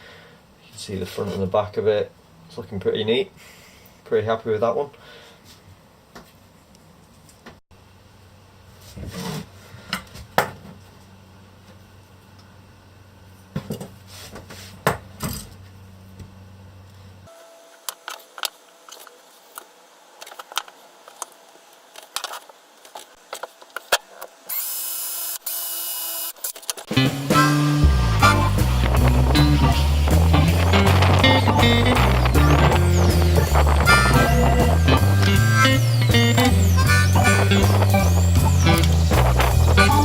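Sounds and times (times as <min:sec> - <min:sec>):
power drill running: 0:24.5 - 0:26.4.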